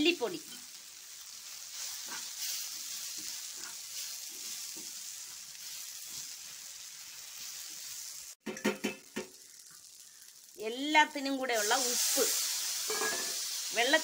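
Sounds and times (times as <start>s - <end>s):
food sizzling in a pan: 0.0s - 14.0s
steel spoon scraping a pan: 1.6s - 6.5s, 11.7s - 13.6s.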